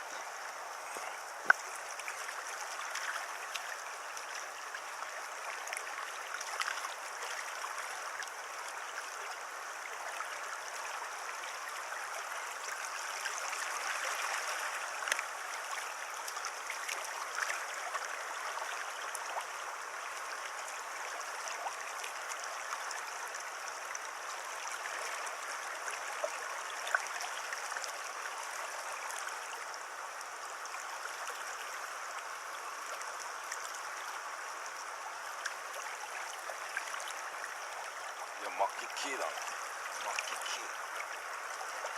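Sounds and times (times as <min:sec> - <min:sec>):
water running over stones: 0:00.0 - 0:41.9
faint ticks: 0:00.1 - 0:04.8, 0:05.6 - 0:08.8, 0:15.0 - 0:18.0.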